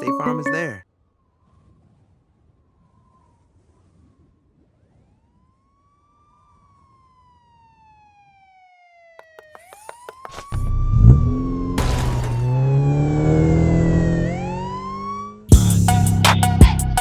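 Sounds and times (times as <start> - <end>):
wailing siren: 5.0 - 9.9, 12.3 - 15.5.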